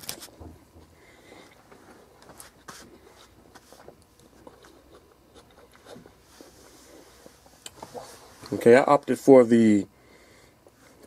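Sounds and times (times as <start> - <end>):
faint chewing: 2.9 - 8.5.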